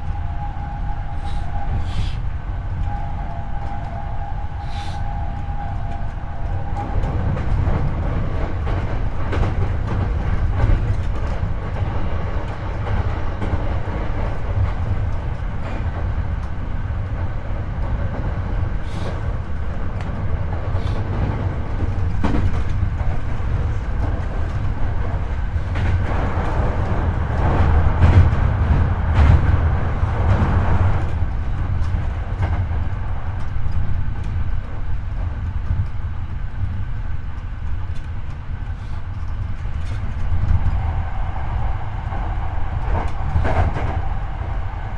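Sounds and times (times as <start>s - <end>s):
train motor whine: 0.0s - 11.9s
rail joint clicks: 0.0s - 44.9s
train wheels rumbling on track: 0.0s - 44.9s.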